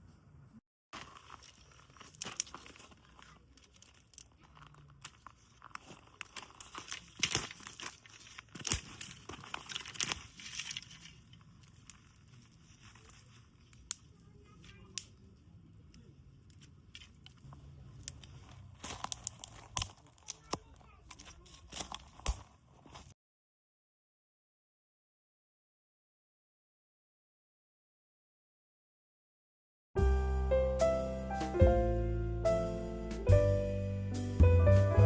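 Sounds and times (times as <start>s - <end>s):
packaging crinkling and tearing: 1.0s - 15.0s, 16.5s - 23.1s.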